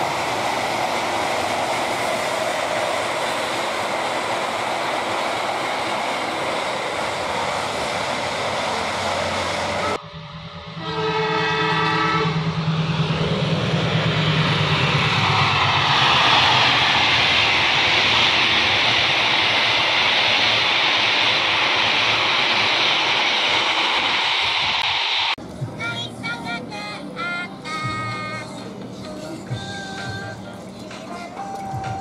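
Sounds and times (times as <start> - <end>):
train wheels rushing on rails: 0.0 - 25.8
locomotive engine drone: 0.0 - 32.0
train horn blast: 10.6 - 12.6.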